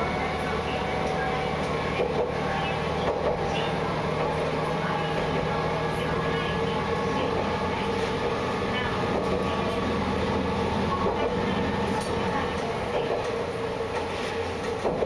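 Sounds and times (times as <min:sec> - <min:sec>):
diesel engine drone: 0:00.0 - 0:14.8
wheels rumbling on rails: 0:00.0 - 0:15.0.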